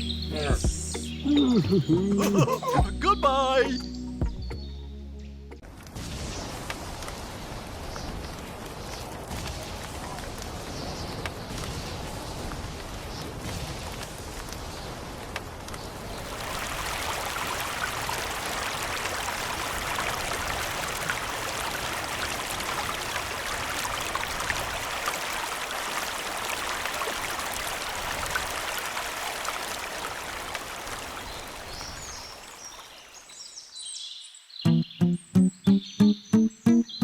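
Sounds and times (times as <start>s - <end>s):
water gushing: 16.0s - 32.7s.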